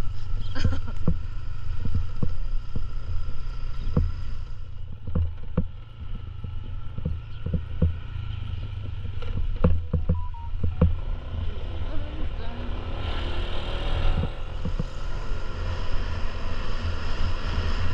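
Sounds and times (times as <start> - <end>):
motorcycle engine whine: 0.0 - 17.9
short knocks: 6.4 - 8.1, 8.8 - 11.0, 14.2 - 15.2.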